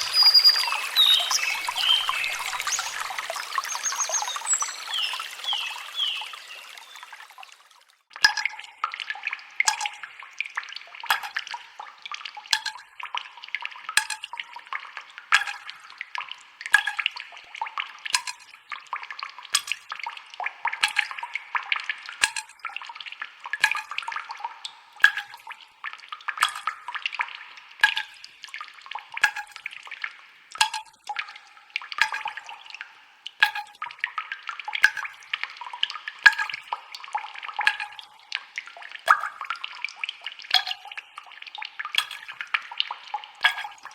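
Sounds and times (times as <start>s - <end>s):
sharp little splashes: 0.0s - 7.9s
water trickling and dripping: 0.0s - 43.9s.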